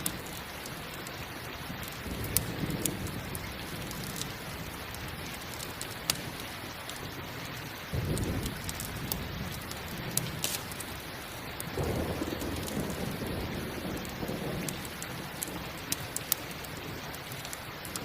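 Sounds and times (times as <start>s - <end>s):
campfire crackles: 0.0s - 18.0s
steady rain: 0.0s - 18.0s
thunder rumbling: 1.7s - 6.4s, 7.9s - 17.2s.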